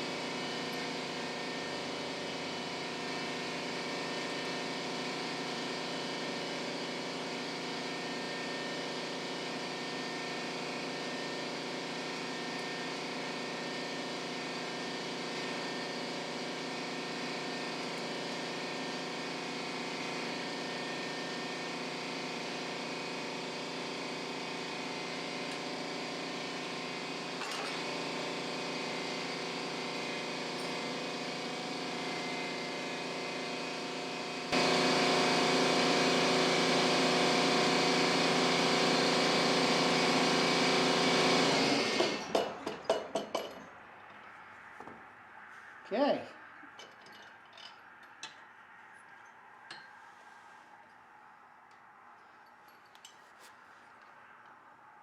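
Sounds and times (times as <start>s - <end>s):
machine humming and whining: 0.0s - 42.4s.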